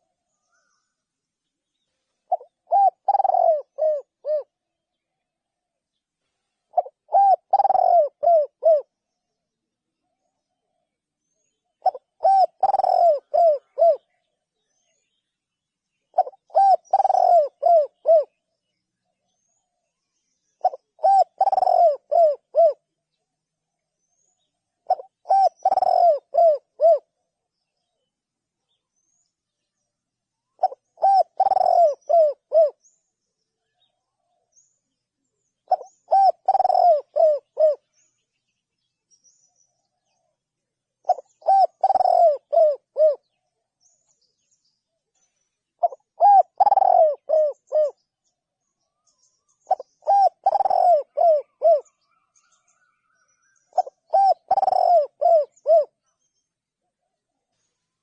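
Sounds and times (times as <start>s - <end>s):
dove cooing: 2.3s - 4.6s, 6.7s - 9.0s, 11.8s - 14.3s, 16.1s - 18.4s, 20.6s - 22.9s, 24.8s - 27.1s, 30.5s - 32.8s, 35.6s - 38.0s, 41.0s - 43.4s, 45.8s - 48.0s, 49.6s - 52.2s, 53.7s - 56.0s.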